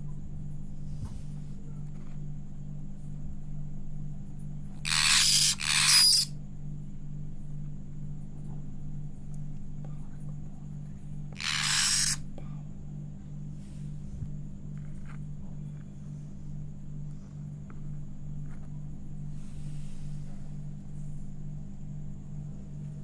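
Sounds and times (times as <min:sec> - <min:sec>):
parrot chicks begging calls: 0:04.9 - 0:06.3, 0:11.4 - 0:12.2.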